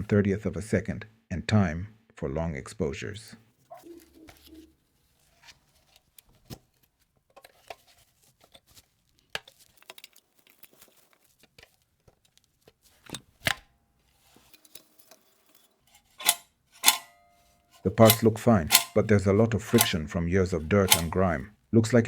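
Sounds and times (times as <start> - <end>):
small metal camera parts clicking: 14.6 - 19.1, 19.7 - 20.0, 20.9 - 21.2.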